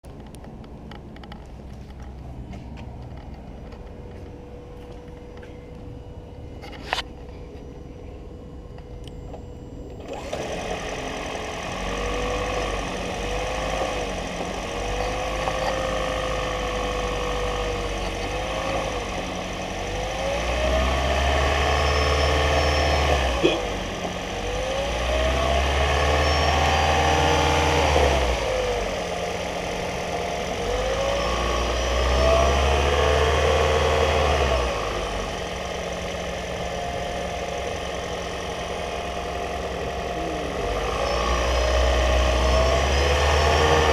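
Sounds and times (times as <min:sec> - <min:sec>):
whine gliding in pitch: 0:02.0 - 0:43.9
car engine revving: 0:10.0 - 0:43.9.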